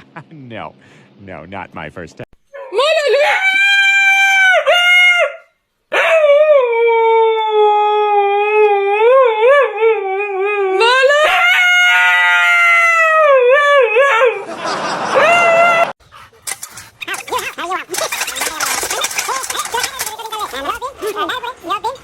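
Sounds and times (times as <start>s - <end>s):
dog howling: 2.5s - 14.5s, 15.1s - 15.9s.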